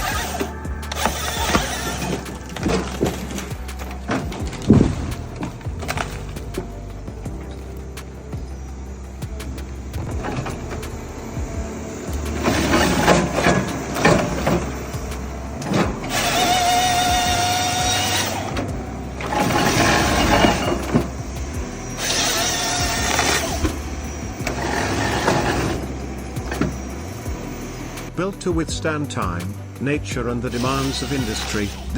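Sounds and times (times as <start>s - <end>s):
chainsaw cutting through logs: 0.0s - 6.7s, 9.9s - 28.1s
machine running: 0.0s - 31.9s.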